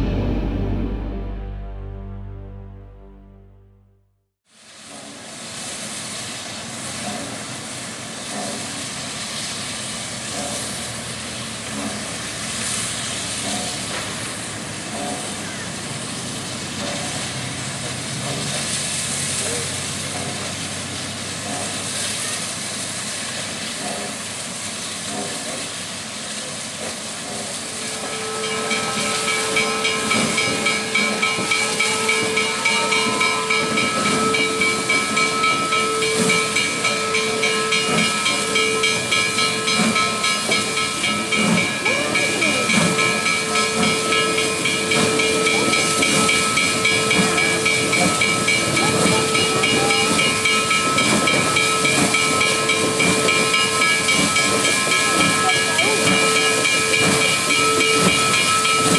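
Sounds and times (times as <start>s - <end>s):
sustained ringing pitch: 0.0s - 3.7s, 27.8s - 58.9s
steam locomotive venting steam: 4.5s - 58.9s.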